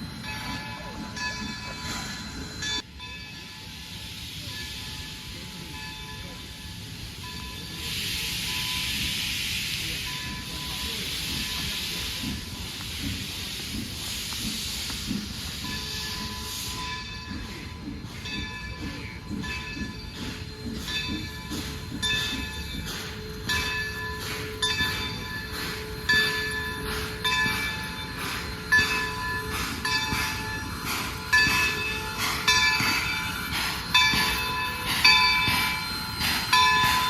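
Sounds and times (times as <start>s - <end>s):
steam hiss: 0.0s - 37.0s
train wheels clicking and knocking: 10.2s - 37.0s.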